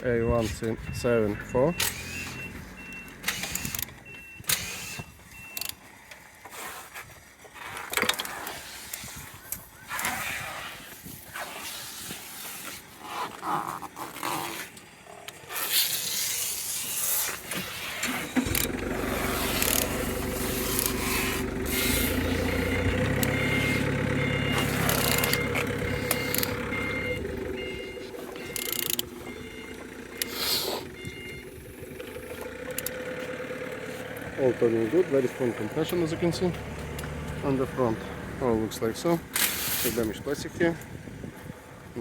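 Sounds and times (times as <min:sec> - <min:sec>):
high repeating beep: 0:00.1 - 0:04.4, 0:22.5 - 0:30.4, 0:31.0 - 0:31.6
steady motor hum: 0:16.5 - 0:39.8.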